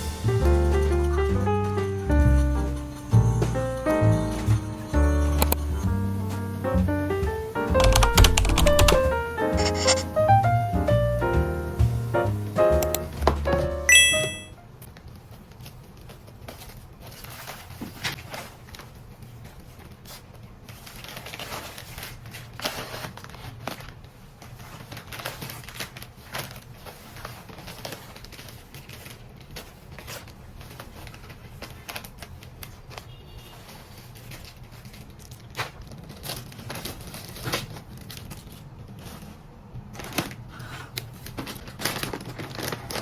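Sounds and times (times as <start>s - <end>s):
clicks and crinkling of handling: 14.8s - 43.0s.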